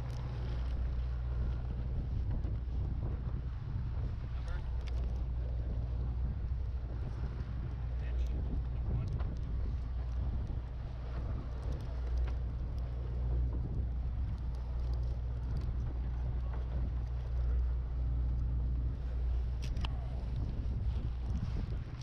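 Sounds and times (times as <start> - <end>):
boat engine droning: 0.0 - 22.0
faint clicks: 4.6 - 5.3, 8.2 - 18.5, 19.6 - 20.5.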